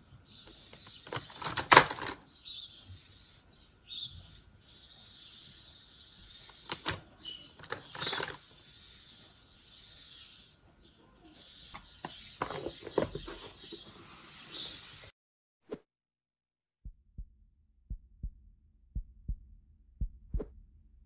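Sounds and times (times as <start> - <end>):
pens clattering in plastic tub: 0.8 - 2.2, 6.5 - 8.4, 12.4 - 13.8.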